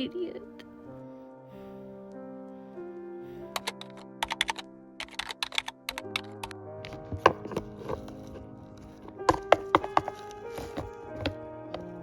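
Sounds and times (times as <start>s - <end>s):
slow background music: 0.0s - 12.0s
sharp irregular clicks: 3.6s - 6.6s.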